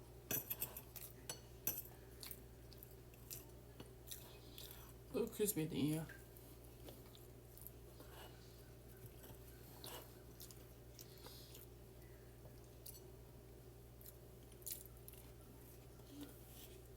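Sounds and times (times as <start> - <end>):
low steady hum: 0.0 - 16.9
chewing crisp food: 1.9 - 5.0, 6.6 - 16.9.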